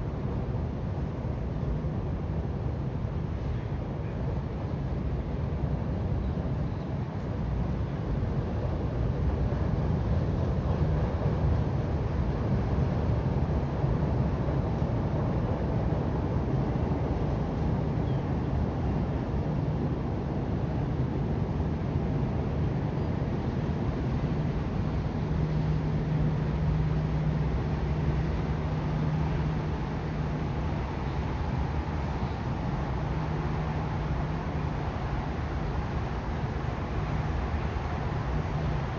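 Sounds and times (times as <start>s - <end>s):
steady low rumble: 23.3s - 38.9s
low droning hum: 23.5s - 38.9s
faint hiss: 24.7s - 38.9s.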